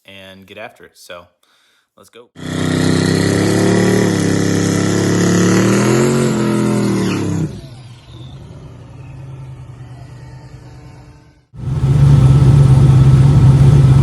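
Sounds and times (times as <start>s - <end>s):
car engine revving: 2.4s - 14.0s
quiet steady engine hum: 7.5s - 14.0s.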